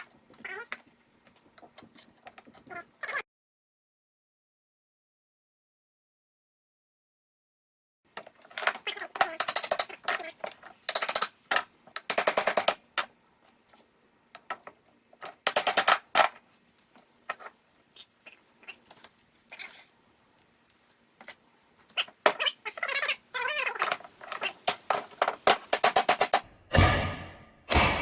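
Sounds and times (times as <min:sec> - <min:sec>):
metallic clicking and rattling: 0:08.6 - 0:10.3, 0:10.9 - 0:12.8.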